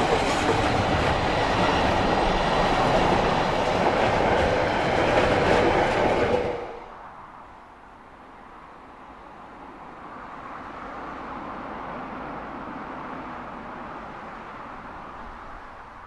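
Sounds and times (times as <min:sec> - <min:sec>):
wheels clicking over rail joints: 0:00.0 - 0:06.4
freight wagons rolling past: 0:00.0 - 0:06.9.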